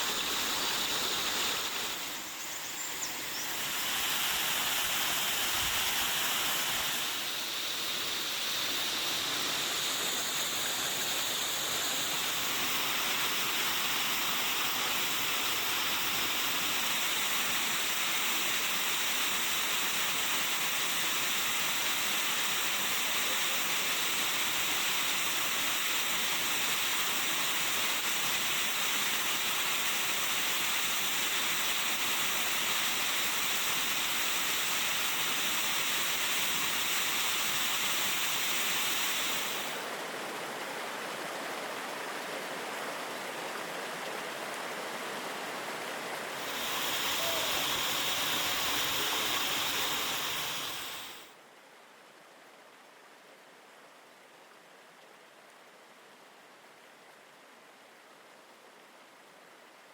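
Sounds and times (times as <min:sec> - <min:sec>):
waterfall rushing: 0:44.8 - 0:51.3.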